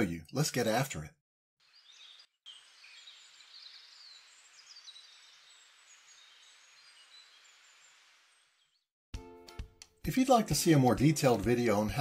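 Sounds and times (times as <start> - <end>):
birds chirping and warbling: 1.6 - 8.9.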